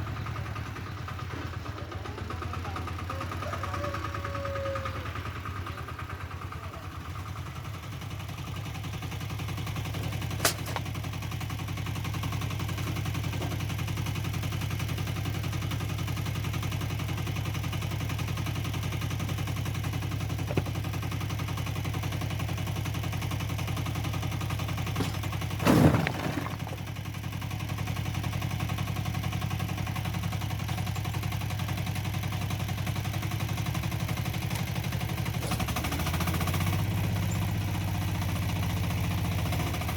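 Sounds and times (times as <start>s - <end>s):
diesel engine running: 0.0s - 39.9s
loud clatter: 24.9s - 27.0s.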